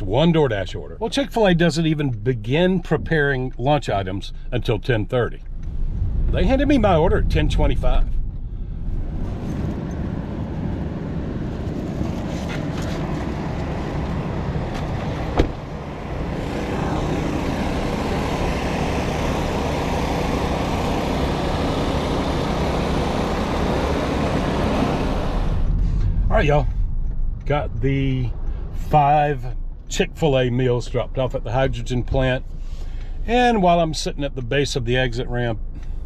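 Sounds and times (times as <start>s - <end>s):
car engine and road rumble: 0.0s - 36.0s.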